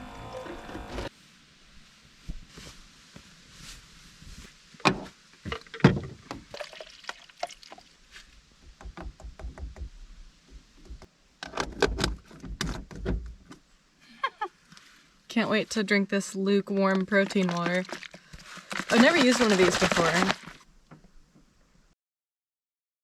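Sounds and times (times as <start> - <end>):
objects knocking and thumping in car: 8.6 - 13.6.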